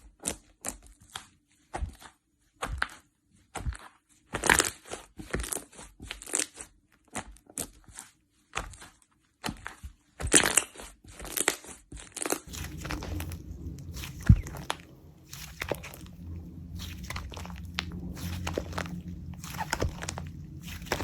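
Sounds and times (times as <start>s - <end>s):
low steady hum: 12.5s - 21.0s
slime crackling and squishing: 12.5s - 21.0s.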